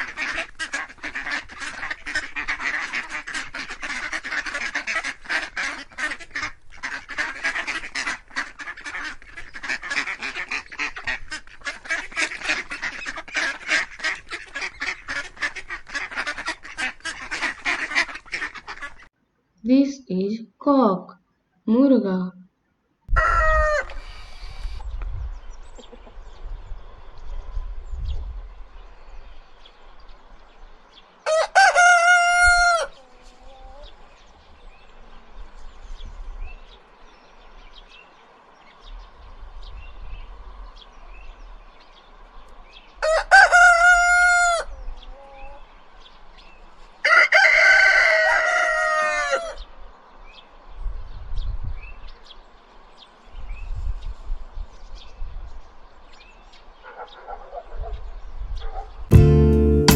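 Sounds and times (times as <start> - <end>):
rooster crowing: 23.1 - 24.2, 31.2 - 33.0, 43.0 - 44.8, 47.0 - 49.7.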